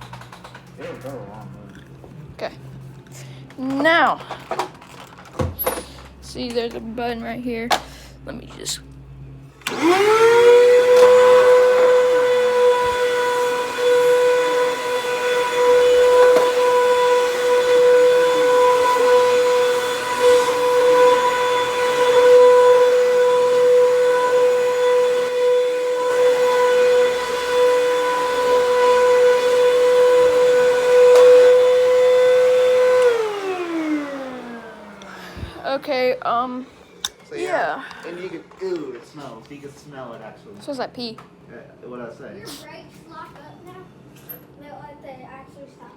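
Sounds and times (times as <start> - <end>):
vacuum cleaner motor whining: 9.6 - 36.6.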